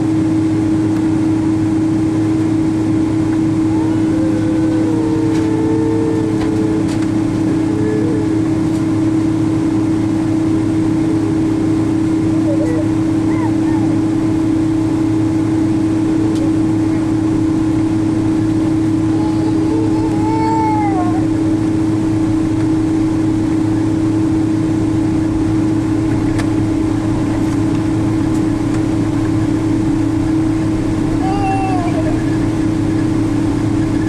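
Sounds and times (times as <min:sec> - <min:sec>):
airplane cabin drone: 0:00.0 - 0:34.0
short high cry: 0:31.2 - 0:32.2.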